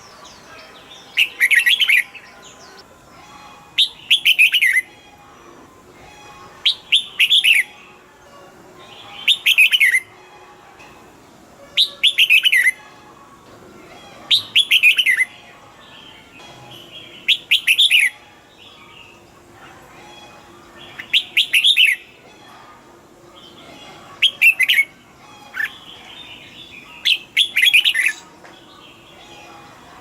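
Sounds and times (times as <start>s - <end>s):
bird singing whistled phrase: 14.3s - 15.3s.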